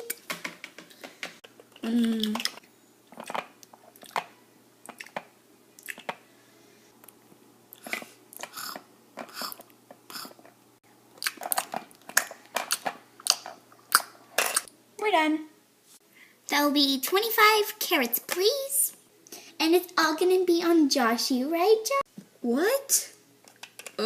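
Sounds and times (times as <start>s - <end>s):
chewing and munching mouth sounds: 1.6s - 6.2s, 7.0s - 14.2s.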